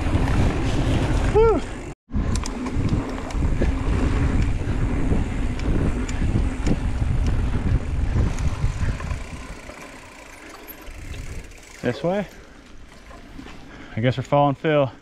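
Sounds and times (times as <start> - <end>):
wind buffeting microphone: 0.0 - 11.8
bike rattling and clicking: 0.0 - 15.0
bike tyres rolling on dirt: 0.0 - 15.0.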